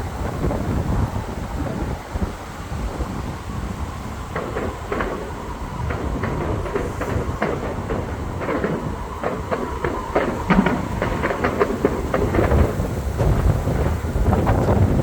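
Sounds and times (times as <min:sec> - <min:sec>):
fireworks low rumble: 0:00.0 - 0:15.0
fireworks popping and crackling: 0:04.3 - 0:15.0.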